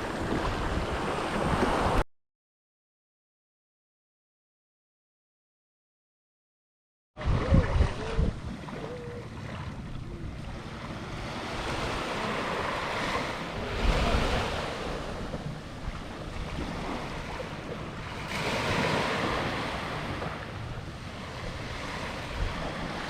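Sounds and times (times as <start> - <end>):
wind buffeting microphone: 0.0 - 2.0, 7.2 - 23.0
ocean surf breaking: 10.6 - 23.0.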